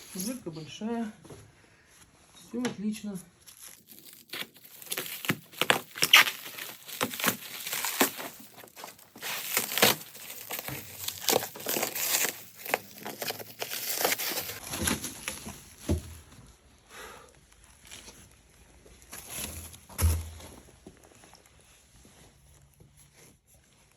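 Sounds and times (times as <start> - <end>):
packing material crinkling and ripping: 0.0 - 0.4, 3.4 - 15.8.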